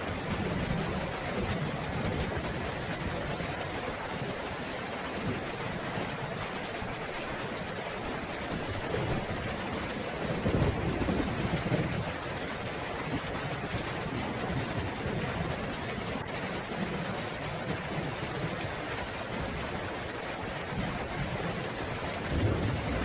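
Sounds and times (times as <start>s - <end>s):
steady rain falling: 0.0s - 23.0s
low roll of thunder: 8.8s - 18.6s, 20.7s - 23.0s.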